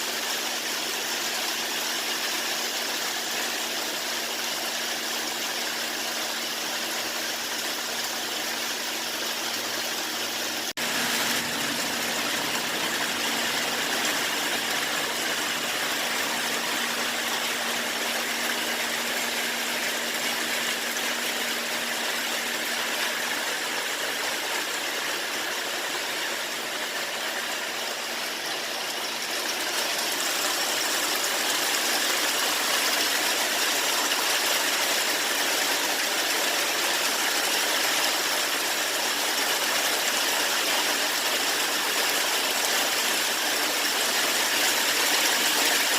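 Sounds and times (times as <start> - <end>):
steady rain falling: 9.6 - 45.9.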